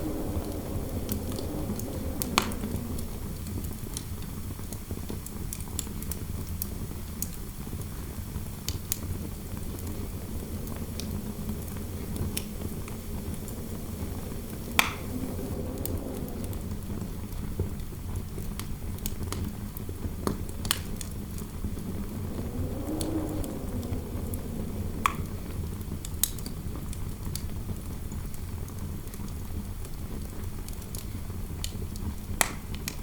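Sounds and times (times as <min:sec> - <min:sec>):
wind rushing: 0:00.0 - 0:05.0, 0:07.8 - 0:18.7, 0:19.9 - 0:27.3
fireplace crackling and popping: 0:00.0 - 0:33.0.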